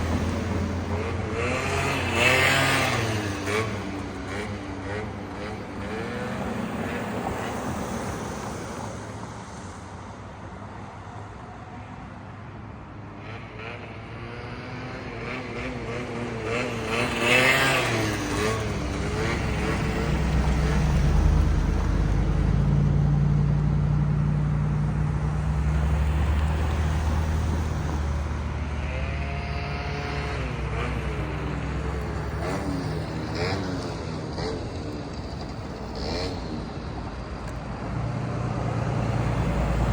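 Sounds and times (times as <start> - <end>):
small motorbike engine running: 26.0 - 37.1.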